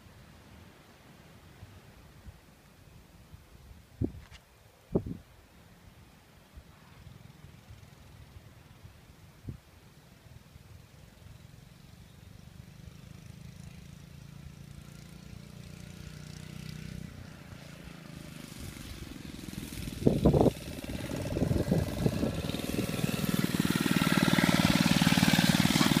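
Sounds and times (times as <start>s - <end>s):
minibike engine running: 11.2s - 26.0s.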